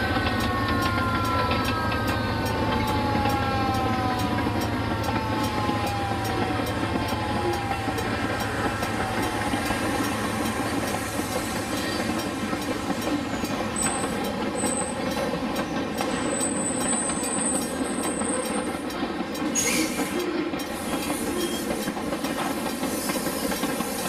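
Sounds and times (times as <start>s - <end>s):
rail clicks: 0.0s - 24.0s
train rumble: 0.0s - 24.0s
high wheel squeals: 19.5s - 21.9s.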